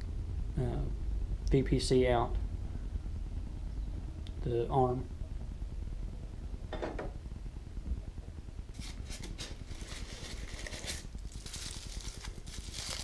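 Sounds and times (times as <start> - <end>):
low steady hum: 0.0 - 13.0
packaging rustling: 8.8 - 13.0.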